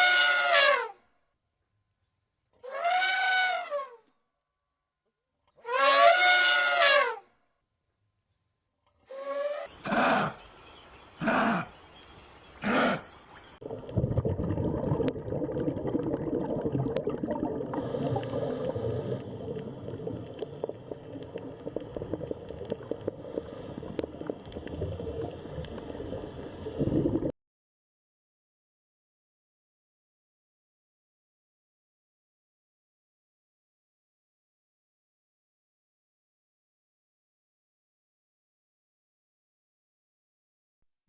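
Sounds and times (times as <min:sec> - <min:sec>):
rough grunting animal noise: 0:09.8 - 0:10.5, 0:11.2 - 0:11.8, 0:12.6 - 0:13.2.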